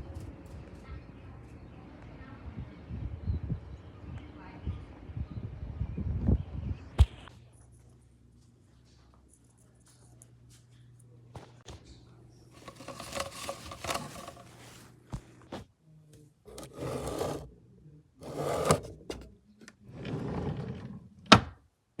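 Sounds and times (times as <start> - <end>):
rustling and scraping: 12.5 - 15.7, 16.5 - 17.5, 18.2 - 19.4.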